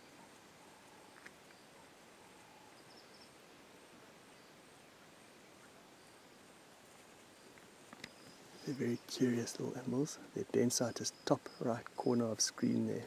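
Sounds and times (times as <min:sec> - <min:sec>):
faint insect calls: 0:00.0 - 0:13.0
faint click: 0:01.1 - 0:01.6, 0:07.5 - 0:08.4.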